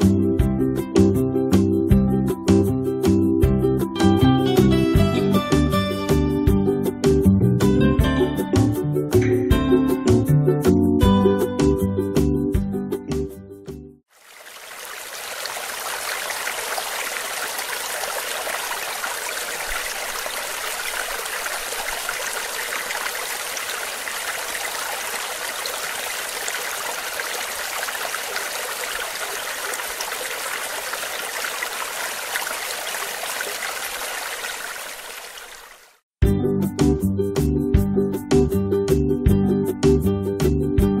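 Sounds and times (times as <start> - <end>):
mountain stream rushing: 14.1 - 36.0.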